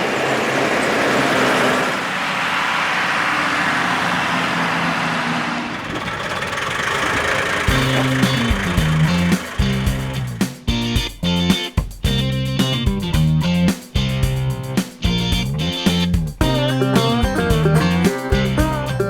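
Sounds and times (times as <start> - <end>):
diesel truck engine running: 0.0 - 19.0
guitar music: 7.7 - 19.0.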